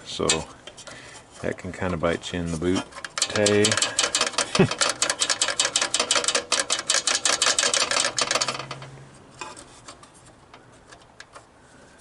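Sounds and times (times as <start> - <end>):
ratchet wrench clicking: 3.0 - 8.9.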